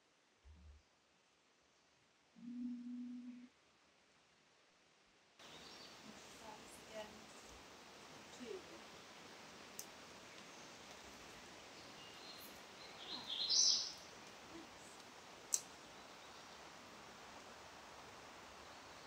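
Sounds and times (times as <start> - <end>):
creek ambience: 5.4 - 19.0.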